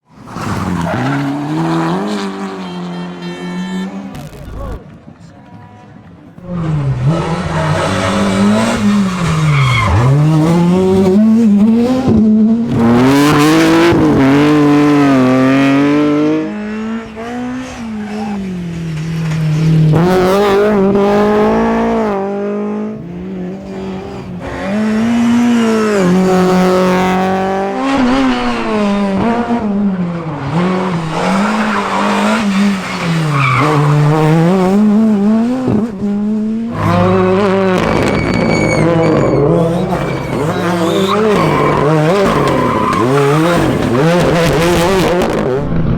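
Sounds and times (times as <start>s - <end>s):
rally car engines revving: 0.1s - 45.9s
tyres squealing: 36.8s - 44.3s.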